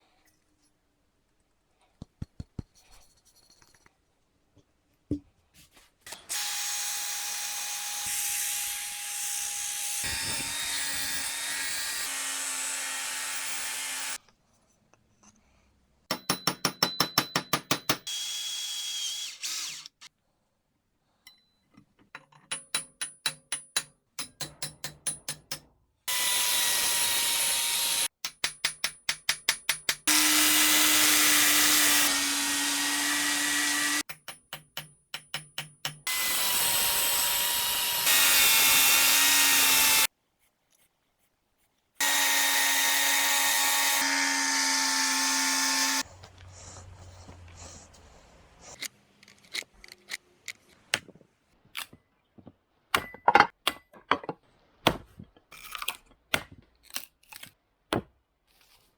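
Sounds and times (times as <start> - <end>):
power tool motor whining: 30.1 - 34.0, 42.0 - 46.0.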